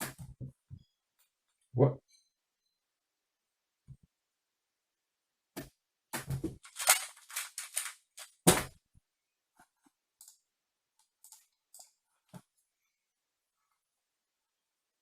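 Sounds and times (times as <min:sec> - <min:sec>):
plastic puzzle cube clacking: 0:06.6 - 0:08.4.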